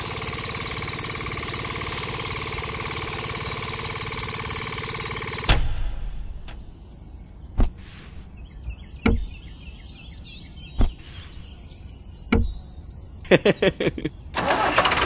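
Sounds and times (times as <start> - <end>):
faint bird chirps: 6.3 - 14.4.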